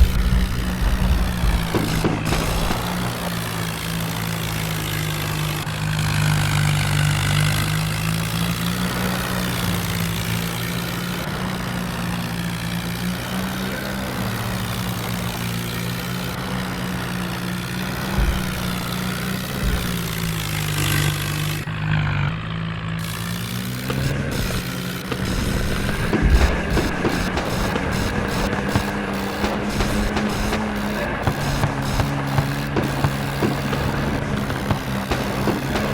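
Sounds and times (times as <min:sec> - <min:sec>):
tractor engine running: 0:00.0 - 0:35.9.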